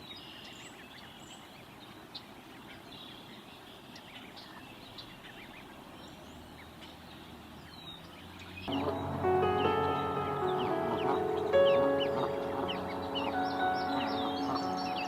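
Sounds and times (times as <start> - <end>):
faint outdoor ambience: 0.0 - 15.0
bird chirps: 4.3 - 15.0.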